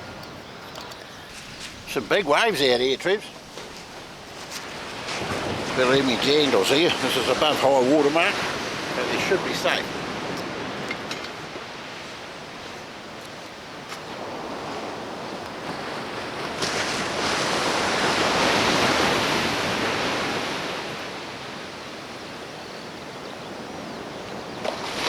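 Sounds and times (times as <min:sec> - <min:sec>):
ocean surf on shore: 0:00.0 - 0:25.0
wave breaking: 0:01.3 - 0:12.0, 0:14.1 - 0:21.4.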